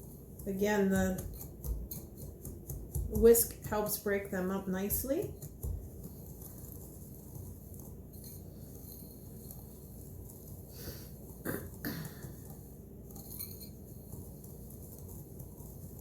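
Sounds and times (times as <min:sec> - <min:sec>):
whisk clinking against bowl: 0:00.0 - 0:04.1
whisk mixing powder in bowl: 0:00.0 - 0:16.0.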